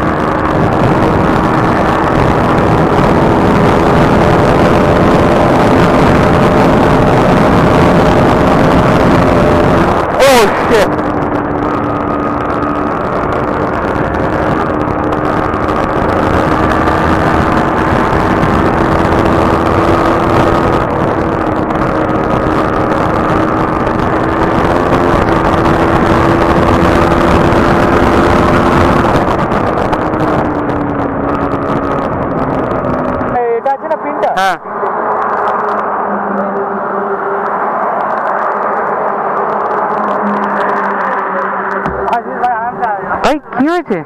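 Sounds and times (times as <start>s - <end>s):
motorcycle engine running: 0.0s - 44.0s
wind rush on microphone: 0.0s - 44.0s.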